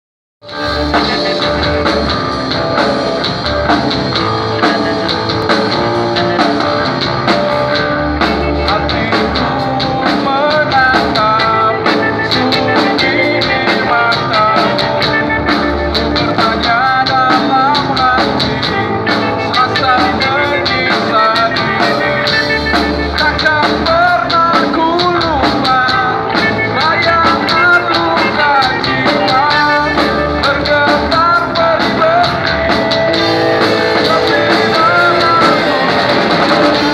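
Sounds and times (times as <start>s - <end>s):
grunge rock band playing live: 0.4s - 36.9s
wavering melody line: 31.8s - 36.9s.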